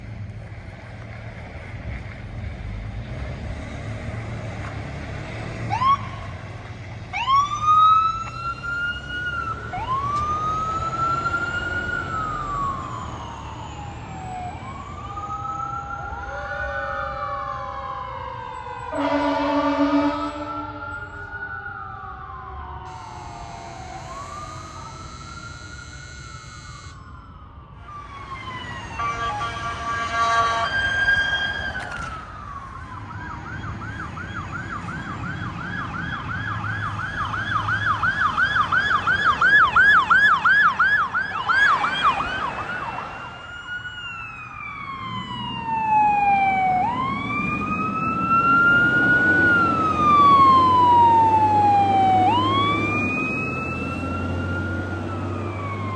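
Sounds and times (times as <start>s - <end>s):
siren wailing: 5.2s - 6.5s, 7.1s - 55.9s
horn blast: 18.9s - 20.8s, 29.0s - 31.1s
siren yelping fast: 22.8s - 27.2s, 35.9s - 55.9s.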